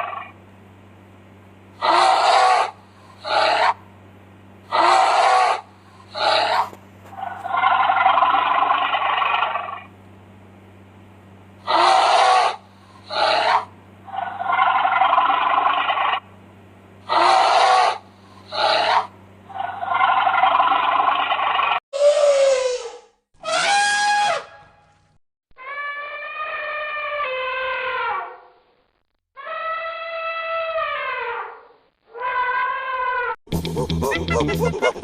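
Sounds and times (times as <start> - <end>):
steady low hum: 0.0 - 21.8
animal harsh rasping calls: 1.8 - 3.9, 4.7 - 9.9, 11.6 - 16.2, 17.1 - 24.6.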